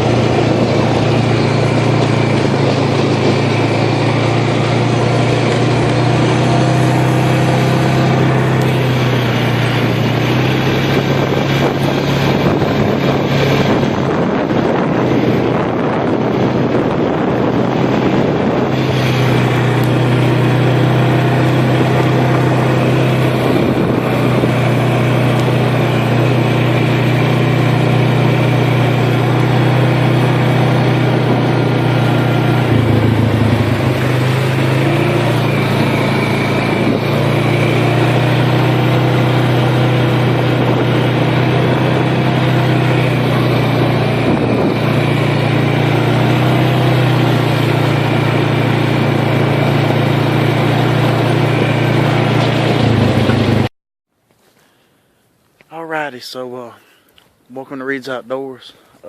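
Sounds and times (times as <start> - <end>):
vehicle engine hum: 0.0 - 55.1
road and wind noise: 0.0 - 59.0.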